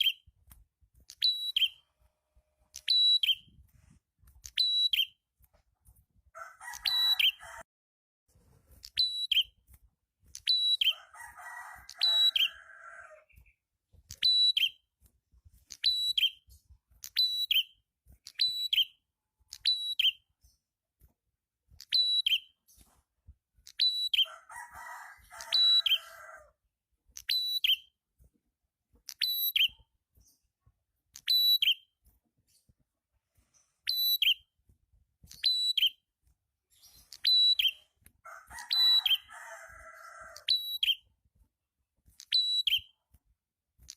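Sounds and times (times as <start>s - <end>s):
songbird high whistled call: 1.2s - 1.8s, 2.8s - 3.6s, 36.8s - 37.9s, 42.3s - 42.9s.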